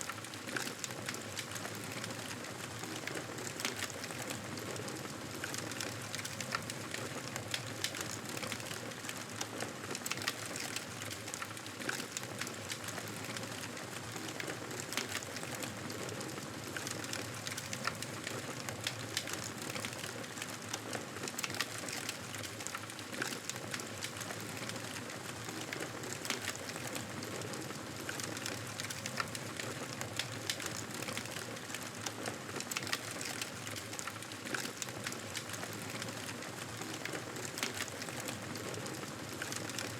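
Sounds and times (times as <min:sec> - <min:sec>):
wood fire crackling: 0:00.1 - 0:39.9.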